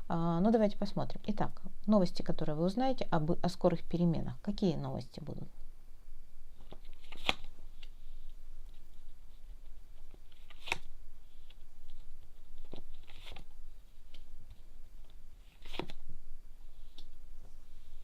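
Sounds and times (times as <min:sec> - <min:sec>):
cards being shuffled: 0:06.6 - 0:16.0
cards snapping: 0:06.7 - 0:07.9, 0:10.3 - 0:10.9.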